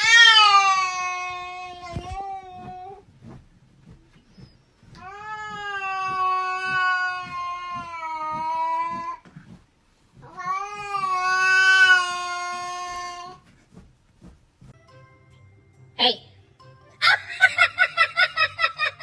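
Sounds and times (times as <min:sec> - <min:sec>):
cat yowling: 0:10.2 - 0:13.4.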